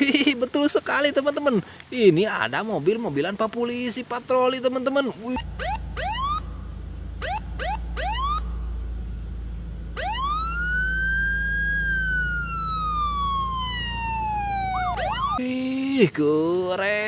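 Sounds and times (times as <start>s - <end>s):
steady low hum: 4.8s - 16.2s
electronic police siren: 5.3s - 8.7s, 10.0s - 15.4s.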